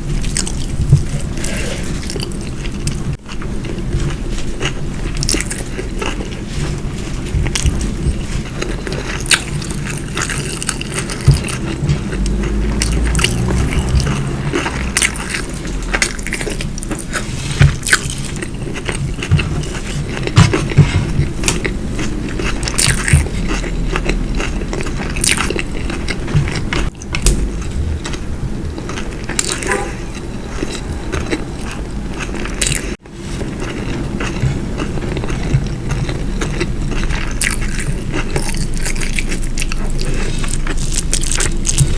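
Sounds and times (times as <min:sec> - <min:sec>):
chewing and biting food: 0:00.2 - 0:41.9
low hum: 0:18.0 - 0:41.9.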